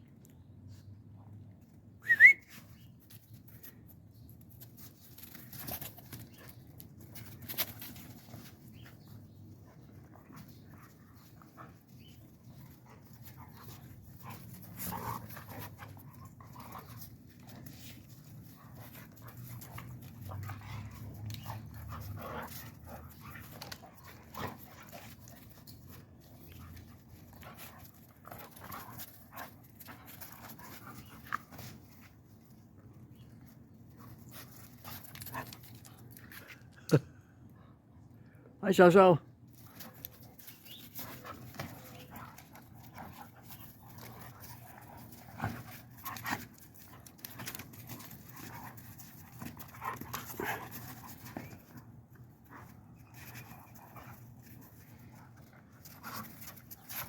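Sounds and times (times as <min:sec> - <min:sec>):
dogs panting: 0:05.5 - 0:32.3, 0:39.6 - 0:57.0.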